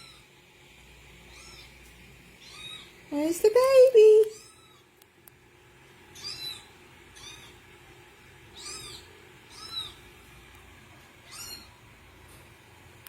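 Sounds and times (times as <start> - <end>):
kitten mewing: 8.6 - 10.1, 11.2 - 11.8.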